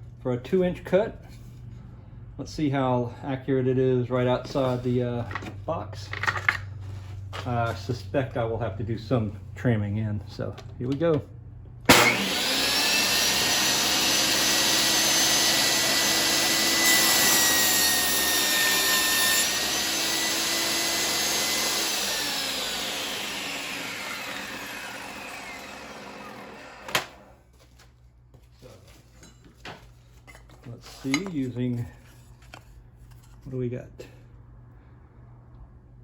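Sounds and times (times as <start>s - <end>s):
saw spinning down: 11.9s - 27.4s
table saw whining: 11.9s - 27.4s.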